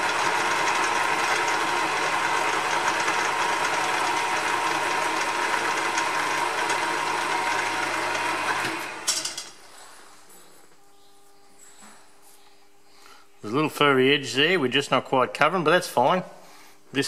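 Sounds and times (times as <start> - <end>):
milling machine whirring: 0.0 - 9.4.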